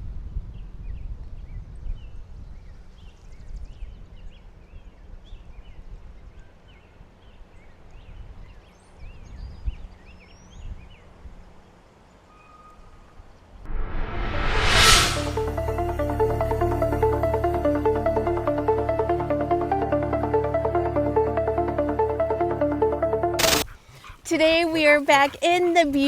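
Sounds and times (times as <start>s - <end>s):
low wind rumble: 13.7s - 17.5s
small birds chirping: 23.4s - 26.0s.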